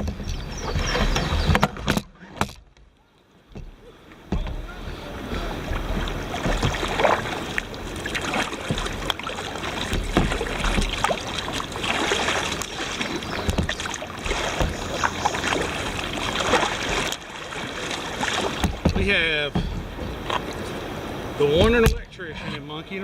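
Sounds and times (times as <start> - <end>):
wind rumbling on microphone: 0.0 - 2.0
water splashing from paddle strokes: 0.0 - 2.8, 3.5 - 22.6.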